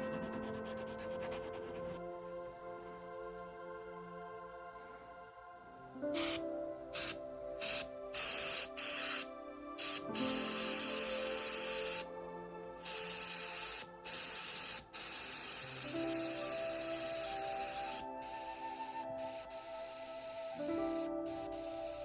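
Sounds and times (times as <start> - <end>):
paint spray hissing: 6.2 - 12.1, 12.8 - 22.0.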